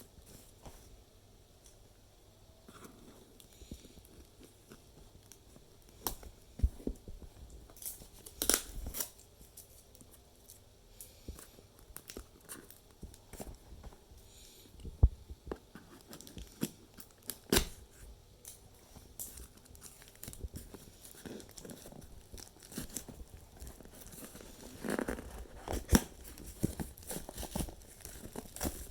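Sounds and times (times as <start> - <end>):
packaging torn and crinkled: 7.8 - 10.6, 19.2 - 28.9.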